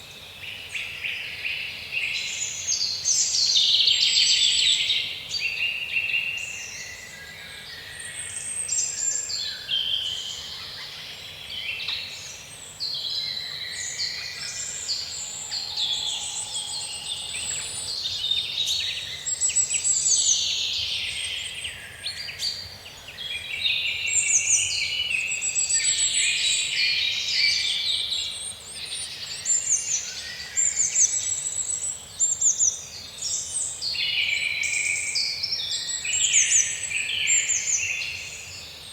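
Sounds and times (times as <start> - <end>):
songbirds chirping and singing: 8.8 - 38.9.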